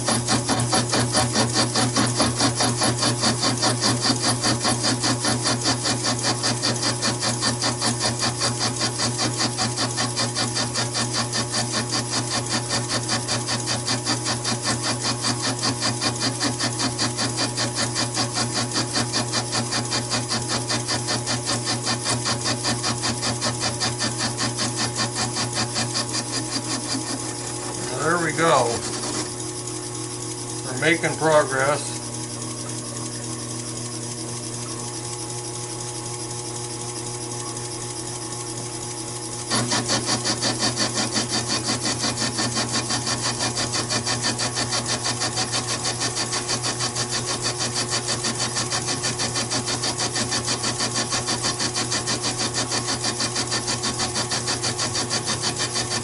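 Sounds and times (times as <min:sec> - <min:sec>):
lathe tool scraping metal: 0:00.0 - 0:36.5, 0:38.8 - 0:56.0
lathe motor hum: 0:00.0 - 0:56.0.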